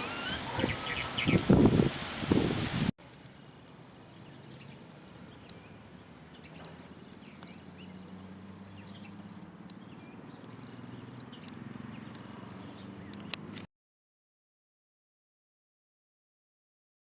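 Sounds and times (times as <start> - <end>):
small birds chirping: 0.0 - 2.6, 4.0 - 13.7.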